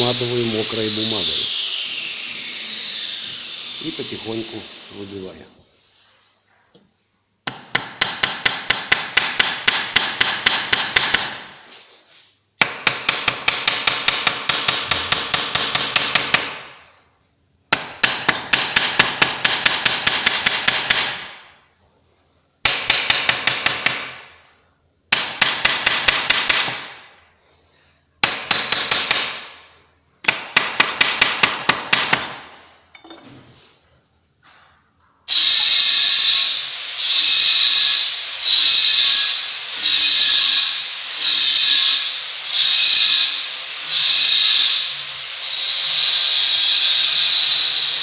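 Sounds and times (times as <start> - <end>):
hammer striking steel: 7.5 - 11.4.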